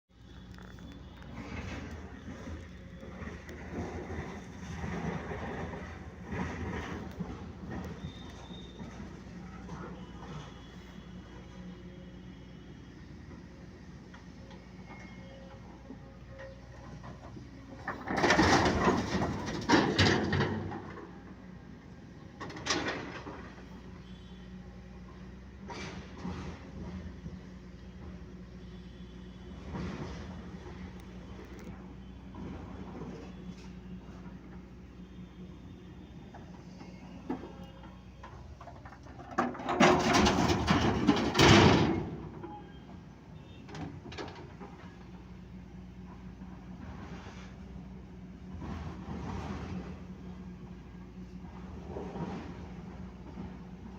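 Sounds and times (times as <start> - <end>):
truck engine hum: 0.1 - 53.9.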